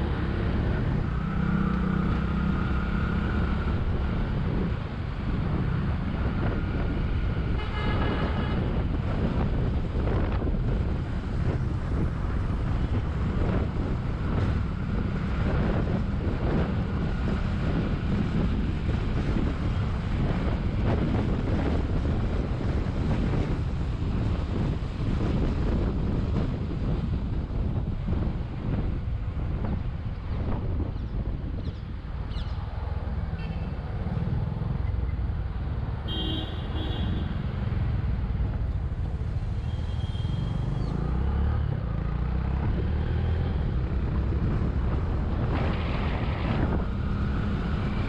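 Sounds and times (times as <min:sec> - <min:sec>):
wind buffeting microphone: 0:02.2 - 0:36.0, 0:41.6 - 0:48.0
vehicle horn: 0:07.5 - 0:08.7, 0:36.1 - 0:37.4, 0:39.7 - 0:40.7.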